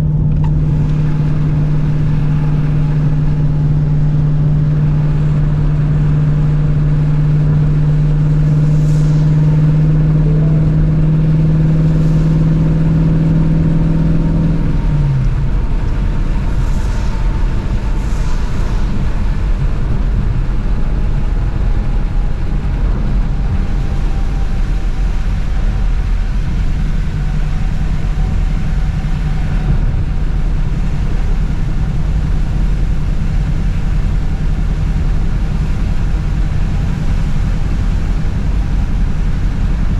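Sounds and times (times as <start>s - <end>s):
car engine drone: 0.0s - 39.9s
tyres on wet road: 0.0s - 39.9s.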